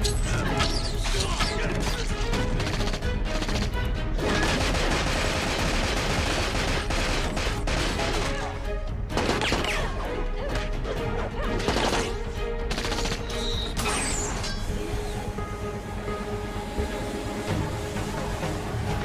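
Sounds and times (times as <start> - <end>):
dramatic score music: 0.0 - 19.0
rapid gunfire: 1.6 - 8.4, 9.1 - 9.8, 11.6 - 13.5.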